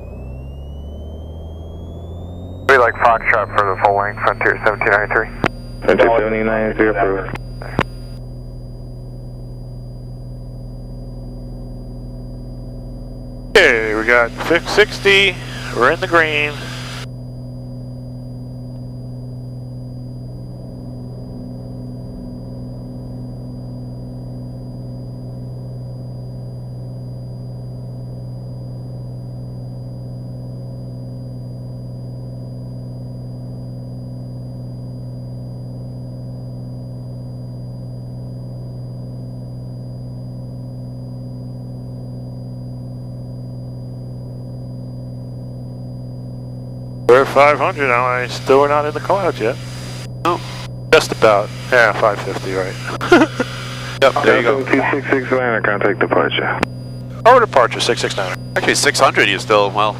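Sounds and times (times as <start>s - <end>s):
aircraft engine and propeller drone: 0.0s - 34.0s, 45.1s - 59.9s.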